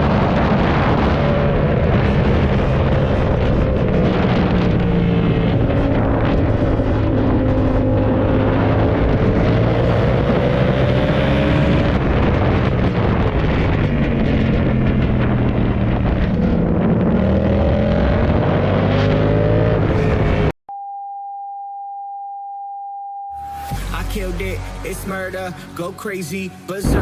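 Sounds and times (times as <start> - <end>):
motorcycle engine revving: 0.0 - 20.5
wind rush: 0.0 - 20.5
electronic beep tone: 20.7 - 24.0.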